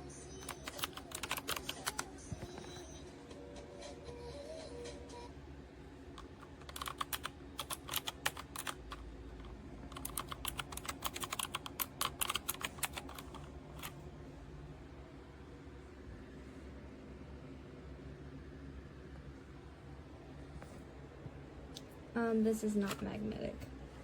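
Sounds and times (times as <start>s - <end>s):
clicking mechanical keyboard typing: 0.4s - 2.8s, 6.2s - 14.0s.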